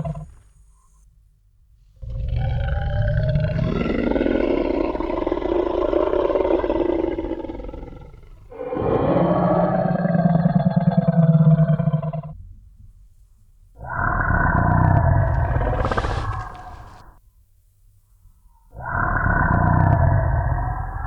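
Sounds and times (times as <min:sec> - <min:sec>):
low rough monster roar: 0:02.1 - 0:12.2, 0:14.1 - 0:17.1.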